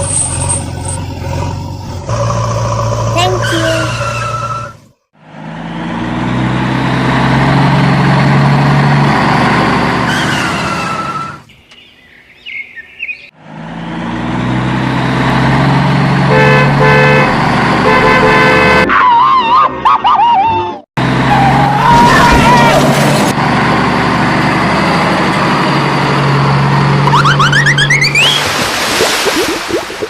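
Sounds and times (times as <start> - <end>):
vehicle engine running: 1.2 - 4.1
horn honking: 3.1 - 4.8, 16.2 - 18.9.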